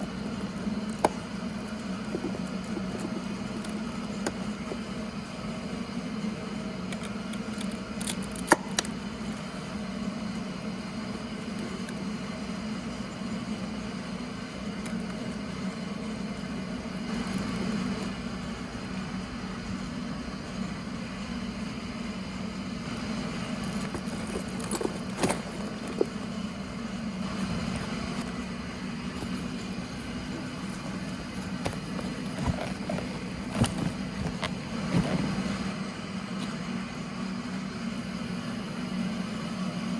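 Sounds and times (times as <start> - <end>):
motorcycle engine running: 20.8 - 35.7.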